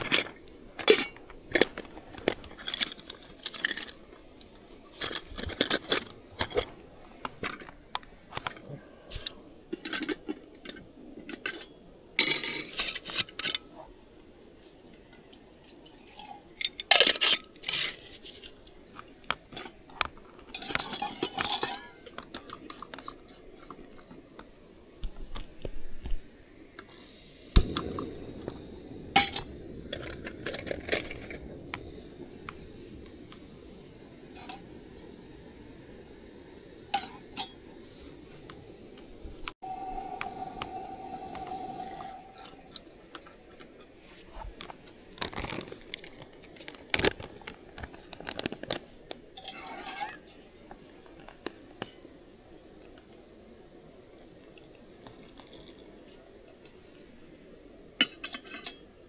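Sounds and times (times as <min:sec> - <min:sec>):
metal cookware and dishes clinking: 0:20.6 - 0:22.6, 0:58.0 - 0:58.8.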